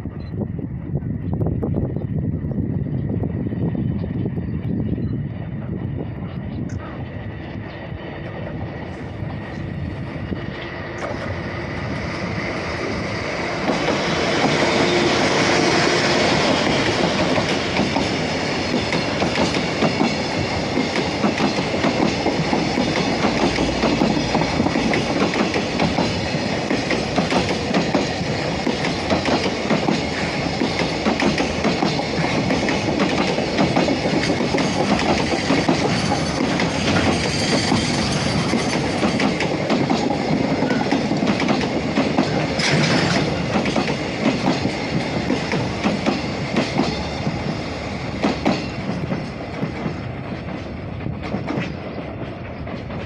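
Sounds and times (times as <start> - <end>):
diesel locomotive passing: 0.0 - 53.0
clickety-clack of train wheels: 3.7 - 53.0.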